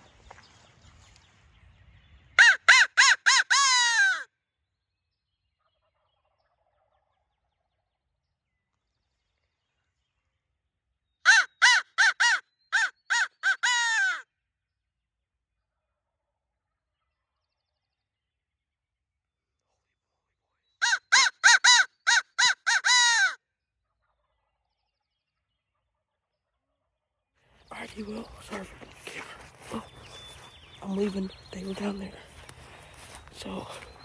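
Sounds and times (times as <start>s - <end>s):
crow cawing: 2.4s - 4.2s, 11.3s - 14.2s, 20.8s - 23.4s.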